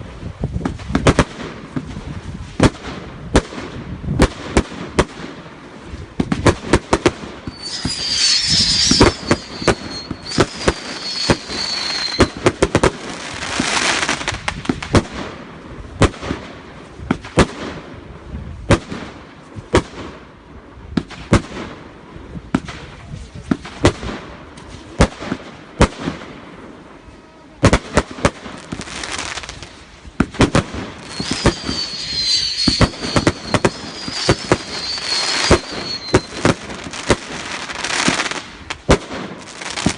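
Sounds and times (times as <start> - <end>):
firework bangs and crackling: 0.0 - 39.9
shrieking firework whistles: 7.0 - 14.2, 30.5 - 38.4.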